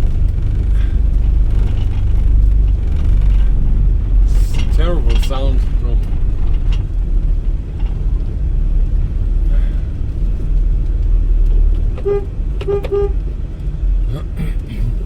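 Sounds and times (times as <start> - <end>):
van engine and road rumble: 0.0 - 15.0
horn toots: 12.0 - 13.3.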